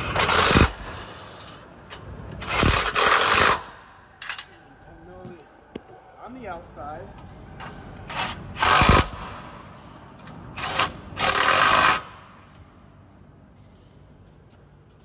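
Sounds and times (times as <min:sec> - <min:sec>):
power tool running down bolts: 0:10.5 - 0:12.2.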